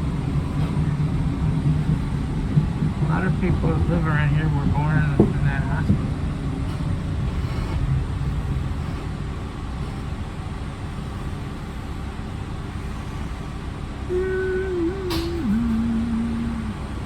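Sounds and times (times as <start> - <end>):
train rumble from inside car: 0.0 - 17.0
whining tone: 14.0 - 17.0.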